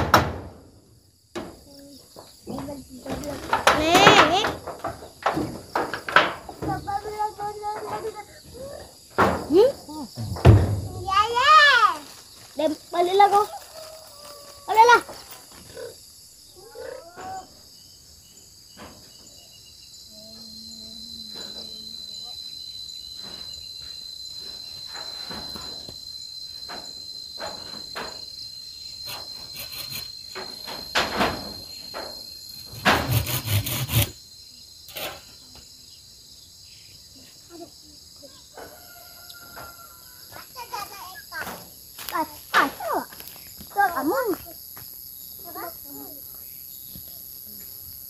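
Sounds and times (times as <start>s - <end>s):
knocks on metal roof: 0.0s - 0.7s, 9.2s - 11.1s
insects singing: 0.1s - 48.0s.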